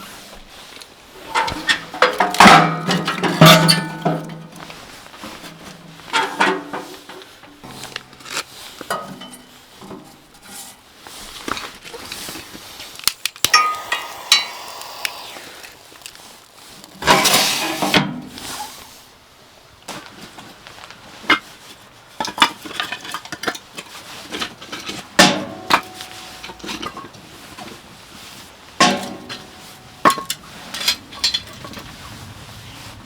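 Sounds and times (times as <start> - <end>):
dishes and utensils clinking: 6.0 - 8.0.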